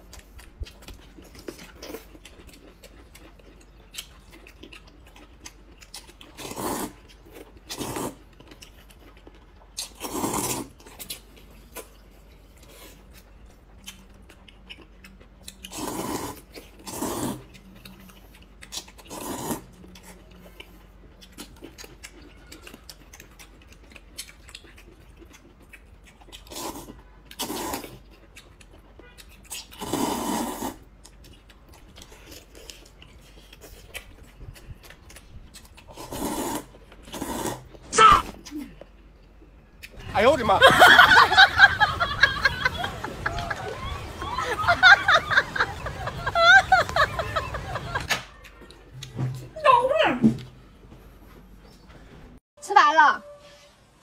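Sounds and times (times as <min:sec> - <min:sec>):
person chewing noisily: 0:00.0 - 0:40.1.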